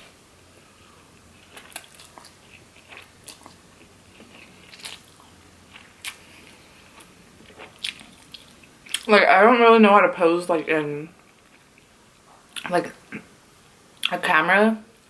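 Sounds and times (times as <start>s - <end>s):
person chewing crunchy food: 0.9s - 9.1s.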